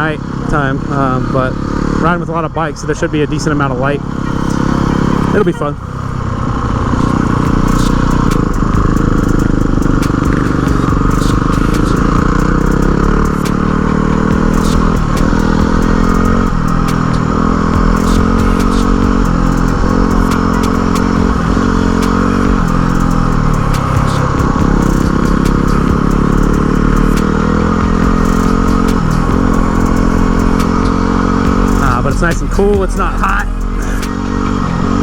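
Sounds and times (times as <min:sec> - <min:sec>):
motorcycle engine revving: 0:00.0 - 0:35.0
sharp clicks: 0:06.8 - 0:34.5.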